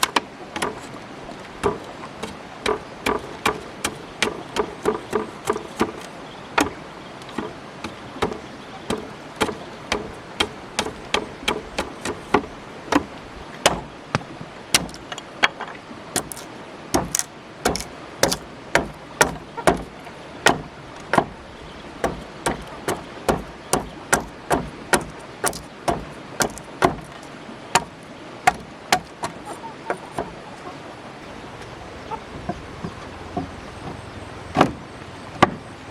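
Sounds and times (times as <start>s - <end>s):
tool knocking on wood: 14.8s - 15.0s, 16.2s - 19.9s, 22.0s - 27.9s, 28.5s - 29.4s.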